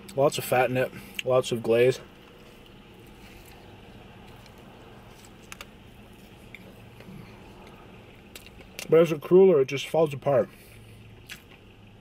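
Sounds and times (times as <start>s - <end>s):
low steady hum: 0.0s - 12.0s
quiet chewing: 2.1s - 8.9s, 10.6s - 11.7s.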